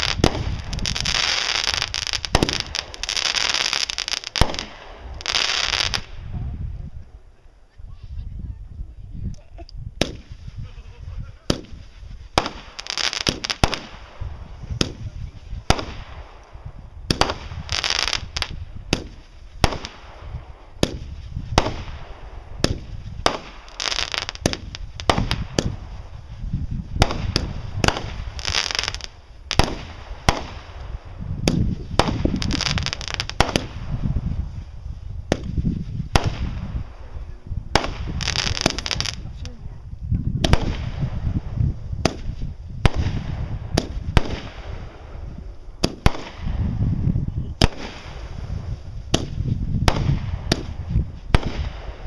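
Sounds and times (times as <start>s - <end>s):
fireworks hissing: 0.0s - 6.3s, 10.0s - 39.6s, 47.5s - 52.0s
fireworks bangs: 0.0s - 6.7s, 10.0s - 39.5s, 40.4s - 52.0s.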